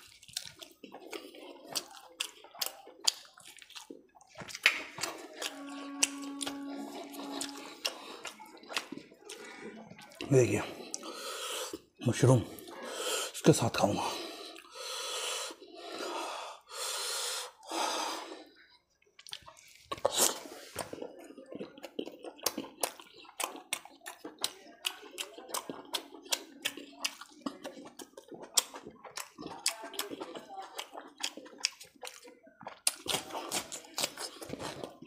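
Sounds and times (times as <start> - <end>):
open-mouth chewing: 0.0 - 13.4, 14.0 - 35.0
man breathing heavily: 14.0 - 18.5.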